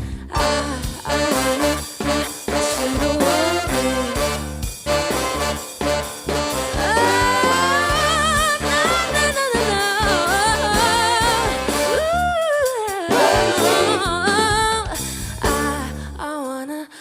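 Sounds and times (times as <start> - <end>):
live band bass and drums: 0.0 - 16.0
singer vocal runs with vibrato: 6.8 - 15.8.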